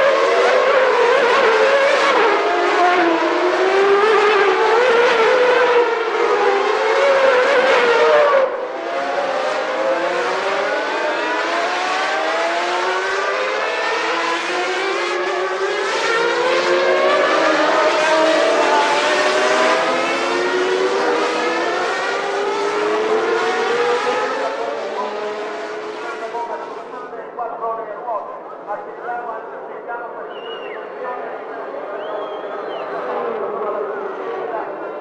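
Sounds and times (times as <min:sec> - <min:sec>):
racing cars accelerating: 0:00.0 - 0:27.1, 0:29.4 - 0:35.0.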